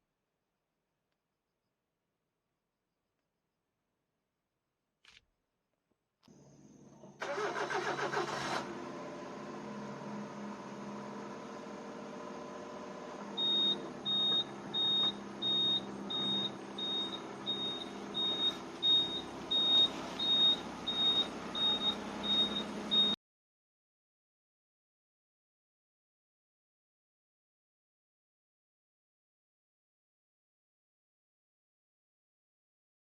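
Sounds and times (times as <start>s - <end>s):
car engine starting and idling: 6.3s - 23.2s
high warning chime beeping: 13.4s - 23.2s.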